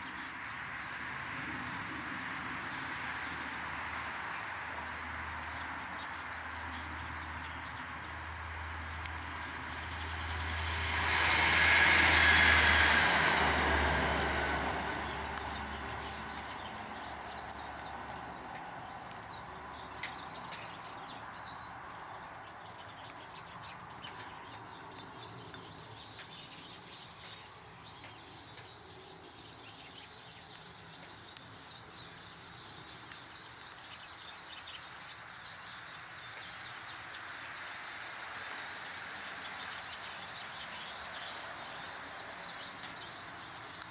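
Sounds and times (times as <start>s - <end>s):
small ticks: 0.0s - 12.5s, 14.4s - 43.9s
vehicle passing: 7.0s - 20.3s.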